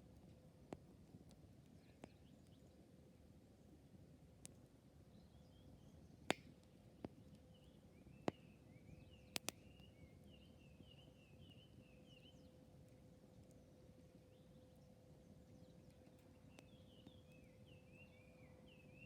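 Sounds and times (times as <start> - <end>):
wood popping in fire: 9.3 - 9.6
campfire burning: 9.3 - 10.3.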